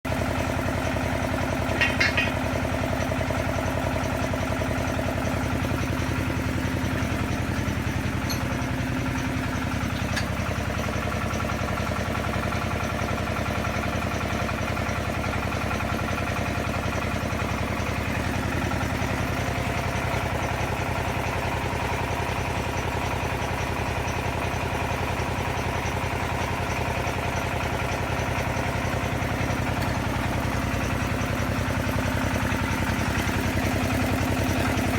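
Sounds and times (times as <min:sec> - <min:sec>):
drilling rig engine running: 0:00.1 - 0:34.9
high-pitched rattle: 0:01.6 - 0:02.6.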